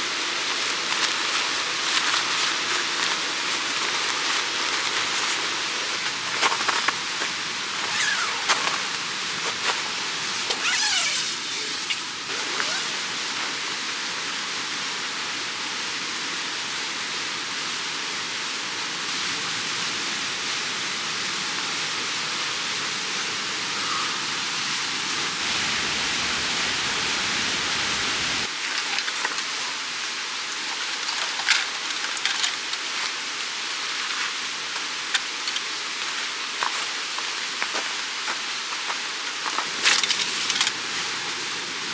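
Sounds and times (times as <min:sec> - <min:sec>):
mountain stream rushing: 0:00.0 - 0:29.2.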